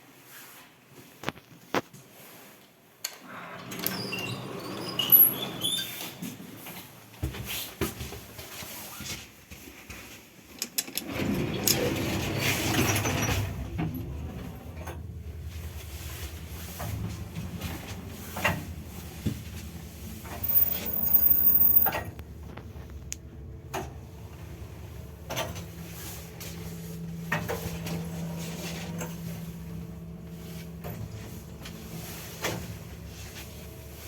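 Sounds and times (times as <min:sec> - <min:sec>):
lift doors sliding and clunking shut: 0:03.2 - 0:07.0, 0:11.0 - 0:34.0
lift motor humming: 0:11.0 - 0:34.0.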